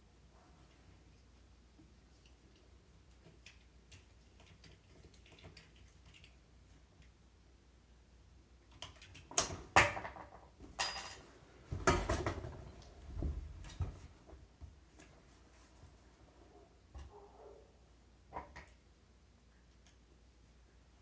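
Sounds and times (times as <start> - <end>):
high metallic ring: 10.8 - 11.2
metal tools knocking and clattering: 10.8 - 11.3.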